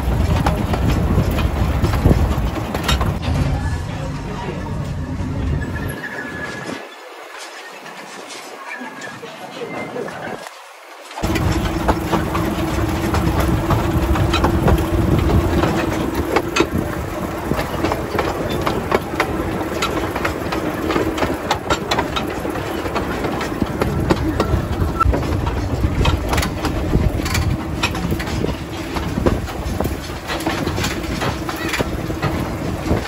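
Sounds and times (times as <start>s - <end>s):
train wheels clicking and rattling: 0.0s - 3.6s, 11.2s - 33.0s
train rumbling on track: 0.0s - 33.0s.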